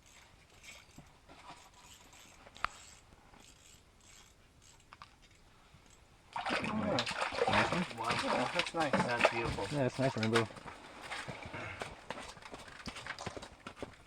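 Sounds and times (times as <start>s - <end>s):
rustling handling noises: 7.5s - 13.9s.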